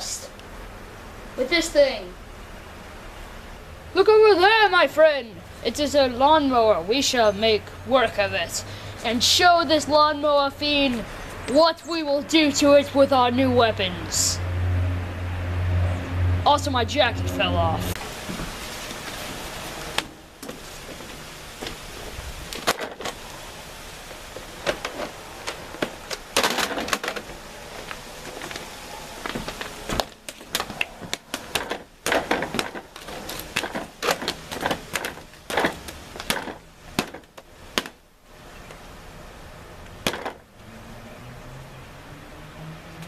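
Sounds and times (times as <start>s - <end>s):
low steady background noise: 0.0s - 43.0s
irregular sharp clicks and knocks: 24.0s - 38.8s.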